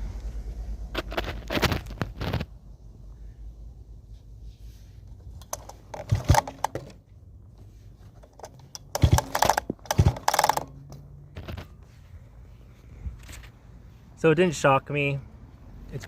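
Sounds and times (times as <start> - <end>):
recoil starter pulled: 5.2 - 7.1, 8.0 - 11.8.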